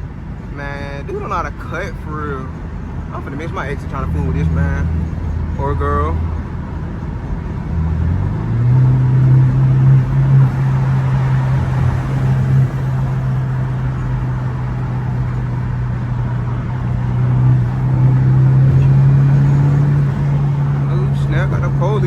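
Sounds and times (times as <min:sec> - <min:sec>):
car engine drone from inside: 0:00.0 - 0:22.0.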